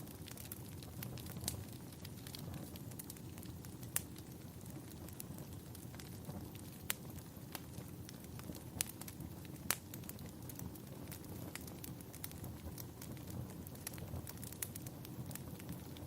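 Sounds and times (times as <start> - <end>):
loud snaps of fire: 0.0 - 16.0
wood fire crackling: 0.0 - 16.0.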